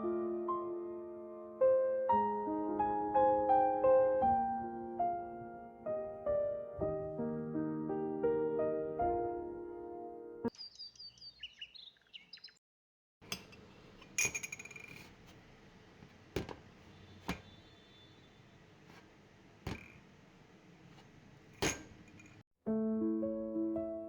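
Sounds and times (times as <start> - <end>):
birds chirping: 10.5 - 12.6
sharp clinks and knocks: 13.2 - 15.4, 21.0 - 22.4.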